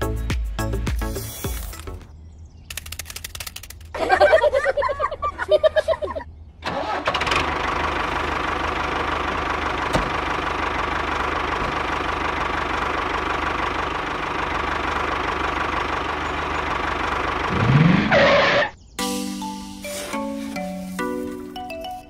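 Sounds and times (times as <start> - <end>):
mini tractor engine running: 6.6 - 17.7.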